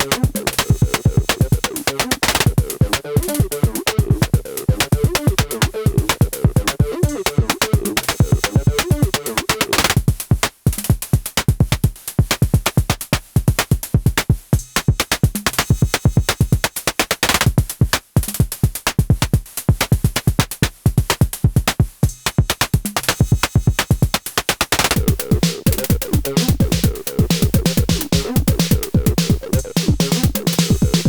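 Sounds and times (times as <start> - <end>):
fast synth drum hits: 0.0 - 9.3, 24.9 - 31.0.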